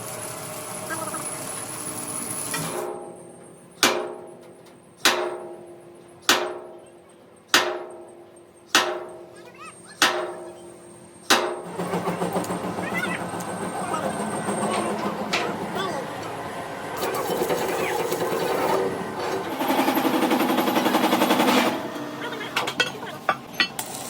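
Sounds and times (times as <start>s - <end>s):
workshop clatter: 0.0s - 24.0s
hammer striking steel: 2.6s - 12.6s.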